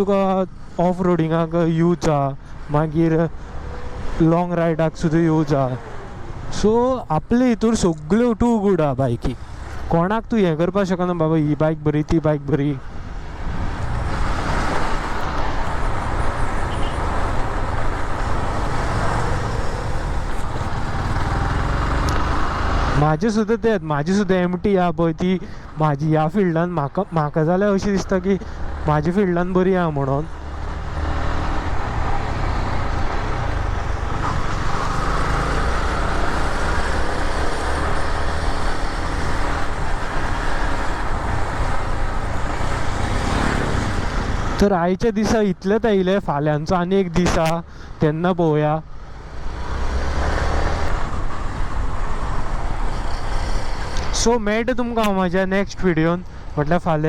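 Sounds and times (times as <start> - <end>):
traffic engines rumbling: 0.0 - 57.0.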